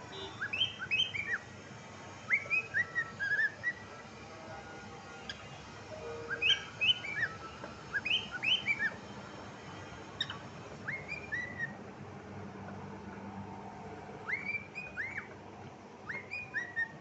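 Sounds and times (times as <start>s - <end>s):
cockatiel chirping and whistling: 0.4s - 1.4s, 2.3s - 3.8s, 6.2s - 8.9s, 10.2s - 11.8s, 14.2s - 15.3s, 16.0s - 17.0s.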